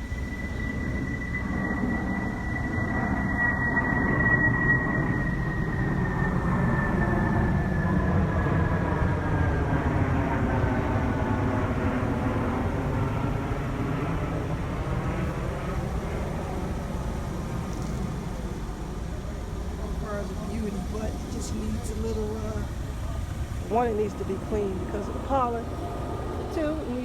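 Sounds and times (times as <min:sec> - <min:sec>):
whining tone falling in pitch: 0:00.0 - 0:09.7.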